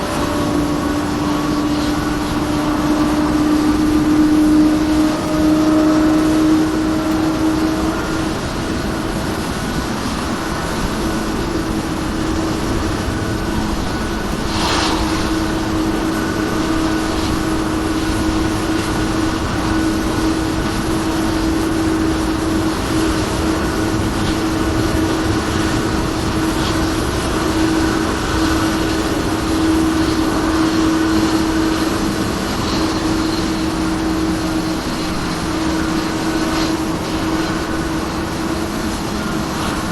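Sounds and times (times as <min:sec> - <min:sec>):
jet engine turbine whine: 0:00.0 - 0:39.9
sharp hiss: 0:14.3 - 0:17.2.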